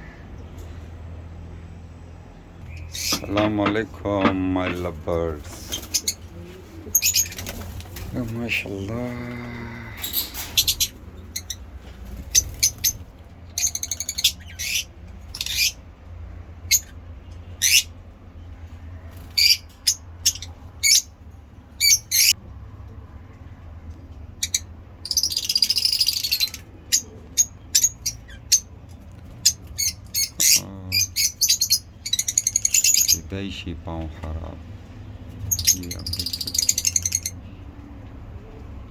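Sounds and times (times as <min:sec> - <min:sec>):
lovebirds chirping: 0:02.3 - 0:15.9, 0:16.6 - 0:22.4, 0:24.4 - 0:33.4, 0:35.4 - 0:37.7.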